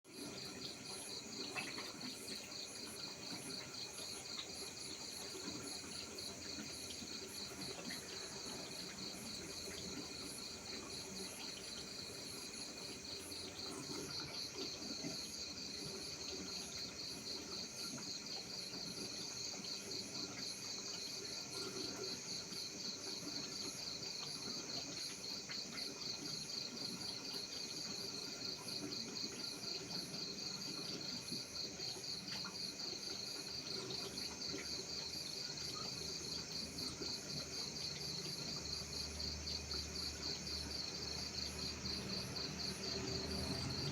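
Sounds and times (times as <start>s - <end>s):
insects chirping in pulses: 0.1s - 43.9s.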